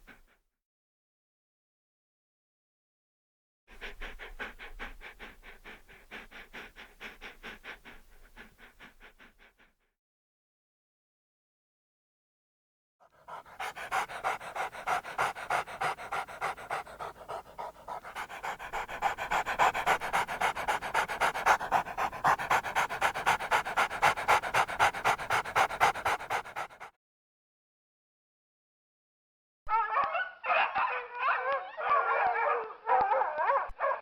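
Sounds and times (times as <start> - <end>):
dog panting rapidly: 3.7 - 9.7, 13.2 - 26.9.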